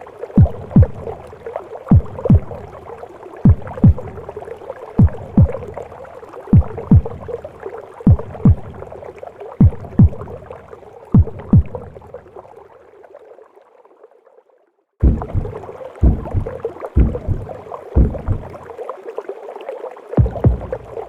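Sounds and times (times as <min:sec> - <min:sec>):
heartbeat thumps: 0:00.4 - 0:01.2, 0:01.9 - 0:02.7, 0:03.4 - 0:04.3, 0:05.0 - 0:05.8, 0:06.5 - 0:07.4, 0:08.1 - 0:08.9, 0:09.6 - 0:10.4, 0:11.2 - 0:12.0, 0:15.0 - 0:18.6, 0:20.2 - 0:21.0
whooshing womb noise: 0:15.0 - 0:18.6.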